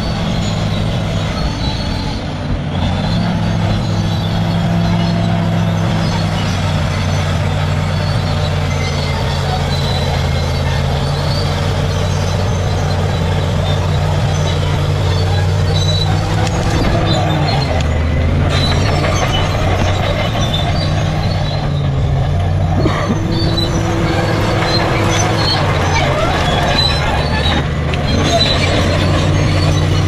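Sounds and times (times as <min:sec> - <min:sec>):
bulldozer diesel engine droning: 0:00.0 - 0:30.0.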